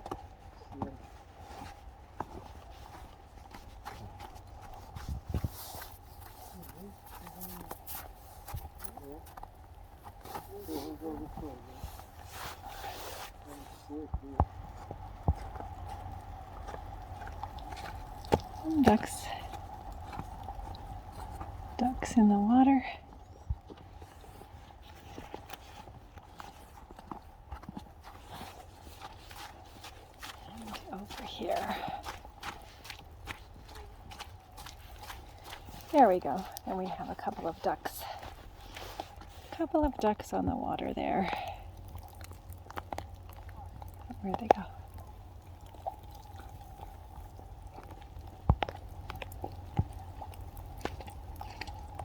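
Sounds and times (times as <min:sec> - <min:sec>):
low steady rumble: 0:00.0 - 0:52.0
footsteps crunching in snow: 0:00.7 - 0:21.6, 0:23.7 - 0:40.0.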